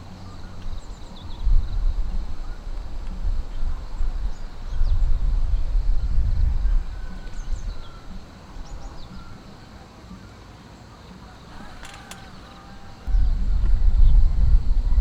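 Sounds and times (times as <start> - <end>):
wind rumble on microphone: 0.0 - 9.6, 11.5 - 15.0
faint high bird chirps: 3.5 - 13.3.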